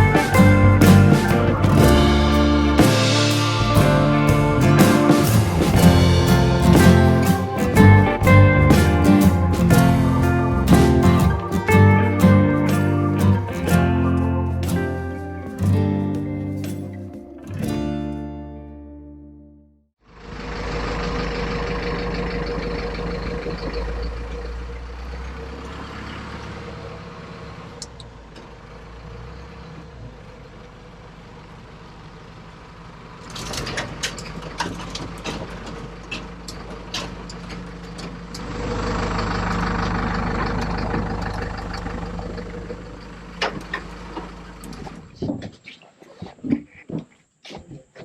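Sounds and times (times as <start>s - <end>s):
truck engine running: 0.0s - 16.7s, 20.1s - 45.2s.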